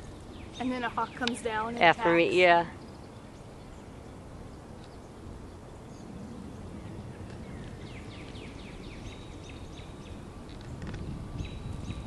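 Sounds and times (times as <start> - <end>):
low outdoor rumble: 0.0 - 12.0
small bird chirping: 2.7 - 12.0.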